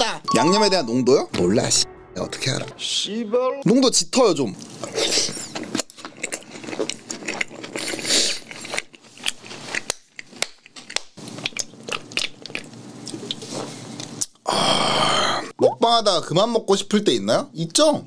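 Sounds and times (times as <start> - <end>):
crunchy chewing of fried chicken: 4.6 - 14.5.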